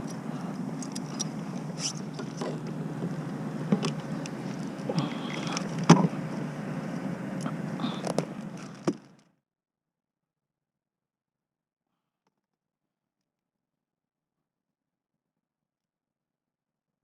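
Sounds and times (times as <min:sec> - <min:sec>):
gear knocking against kayak hull: 0:00.0 - 0:09.1
low rumble of wind and water: 0:00.0 - 0:09.2.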